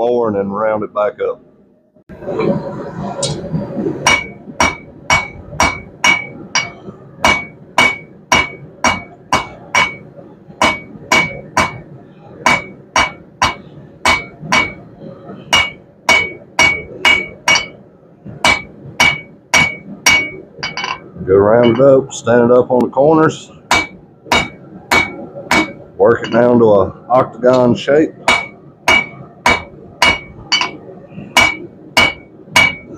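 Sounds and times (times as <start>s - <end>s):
hammer striking steel on anvil: 4.0s - 14.9s, 15.5s - 17.8s, 18.4s - 21.0s, 21.6s - 21.9s, 23.7s - 26.5s, 28.3s - 30.8s, 31.4s - 32.9s.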